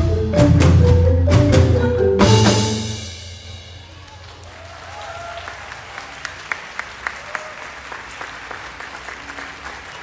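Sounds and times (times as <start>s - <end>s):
audience applauding: 4.0s - 10.0s
close loud claps: 4.1s - 10.0s.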